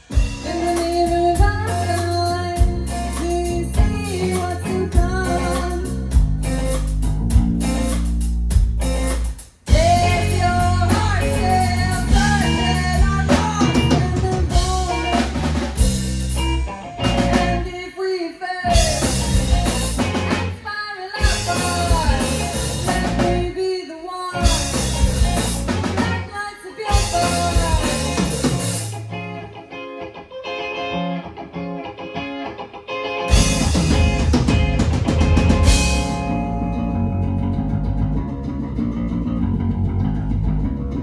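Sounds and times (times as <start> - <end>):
person singing: 0.0 - 6.2, 9.7 - 15.4, 17.0 - 29.1
bass guitar: 0.0 - 17.8, 18.6 - 20.6, 21.2 - 23.6, 24.4 - 29.9, 33.2 - 41.0
drum kit: 0.0 - 17.8, 18.7 - 23.6, 24.4 - 29.2, 33.3 - 41.0
electric guitar: 0.0 - 41.0.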